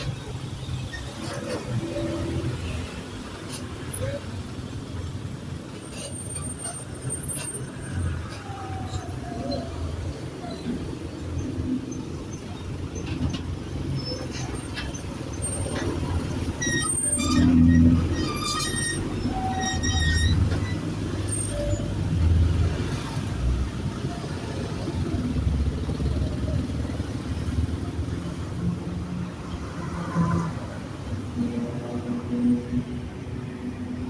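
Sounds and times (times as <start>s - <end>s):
bus engine running: 0.0s - 29.4s
short high squeaks: 12.4s - 22.4s.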